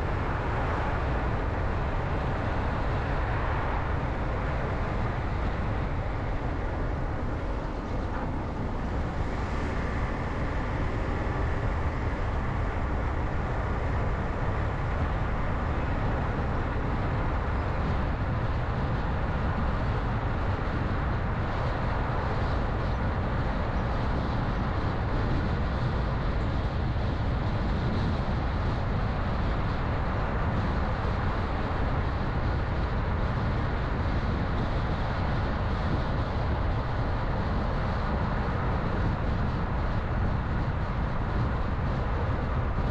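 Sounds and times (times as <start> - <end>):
car road and engine noise: 0.0 - 42.9.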